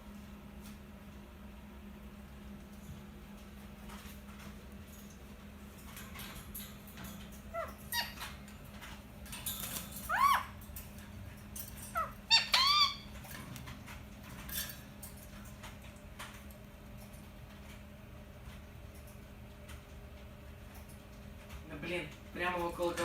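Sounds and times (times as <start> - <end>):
parakeet chirping calls: 7.4 - 9.0, 9.6 - 10.7, 11.7 - 13.2.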